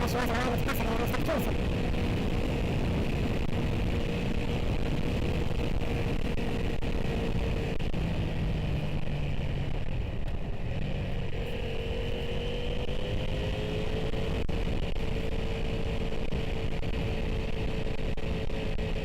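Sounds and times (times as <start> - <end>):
motorcycle engine running: 0.0 - 19.0
wind and road noise: 0.0 - 19.0.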